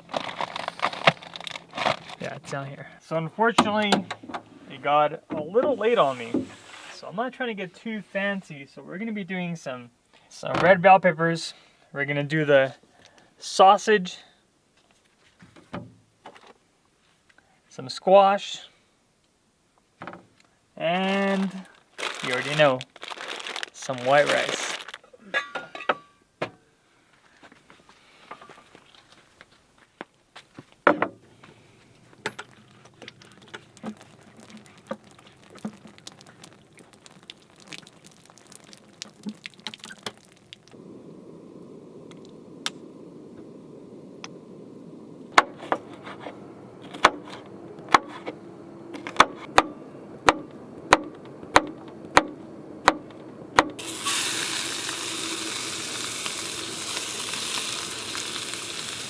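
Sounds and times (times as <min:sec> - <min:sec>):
steady low hiss: 0:00.0 - 0:25.2, 0:25.8 - 0:59.0
food sizzling in a hot pan: 0:53.8 - 0:59.0.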